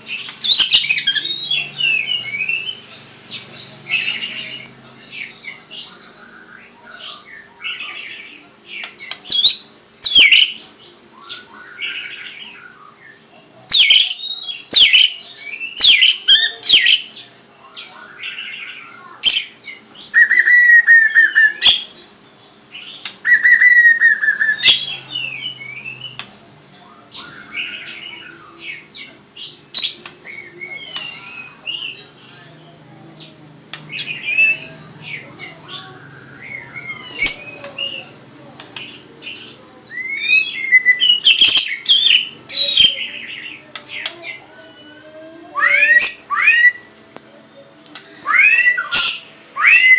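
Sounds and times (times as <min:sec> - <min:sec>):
bird trilling: 0:00.1 - 0:05.6, 0:06.4 - 0:22.0, 0:22.7 - 0:26.2, 0:33.2 - 0:38.2, 0:38.8 - 0:45.0, 0:45.6 - 0:46.9, 0:48.3 - 0:49.9
pet bird chirping and whistling: 0:00.4 - 0:03.4, 0:09.3 - 0:10.6, 0:13.7 - 0:17.2, 0:20.1 - 0:21.9, 0:23.0 - 0:26.2, 0:35.7 - 0:38.0, 0:39.8 - 0:43.1, 0:45.6 - 0:46.9, 0:48.3 - 0:49.9.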